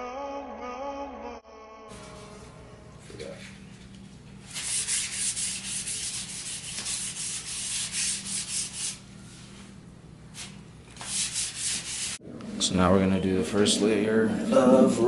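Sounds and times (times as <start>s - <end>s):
sandpaper rubbing strokes: 4.5s - 9.6s, 10.4s - 12.2s.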